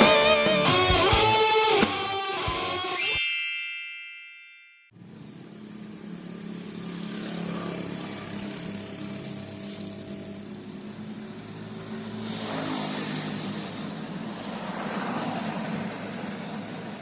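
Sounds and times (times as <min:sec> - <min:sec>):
engine running: 0:05.0 - 0:12.0.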